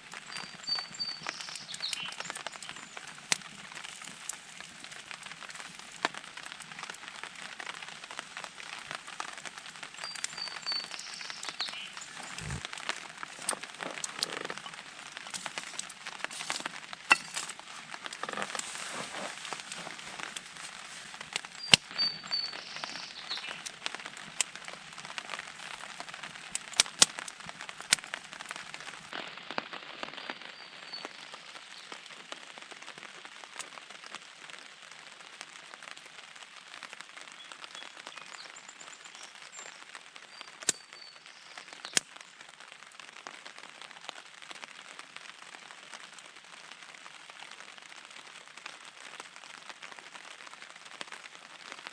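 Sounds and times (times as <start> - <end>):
burning wood popping: 0.0 - 30.3
campfire crackling: 0.0 - 51.9
rain pattering: 0.0 - 51.9.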